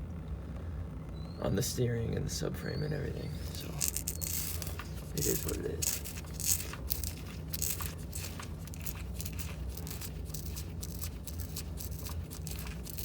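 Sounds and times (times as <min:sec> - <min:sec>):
steady low hum: 0:00.0 - 0:13.0
rustling and crackling handling: 0:03.4 - 0:13.0.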